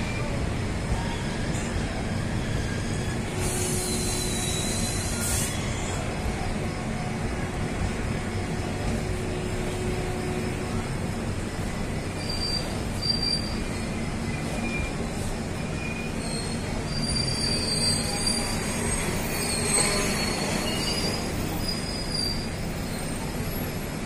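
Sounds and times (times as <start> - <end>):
train wheels rumbling on rails: 0.0 - 24.0
brake and wheel squeals: 1.0 - 6.8, 12.0 - 23.8.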